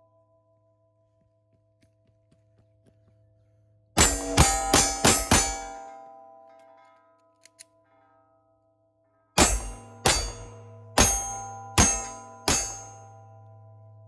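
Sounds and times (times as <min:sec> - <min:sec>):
steel target ringing: 0:04.0 - 0:06.8, 0:09.4 - 0:14.0.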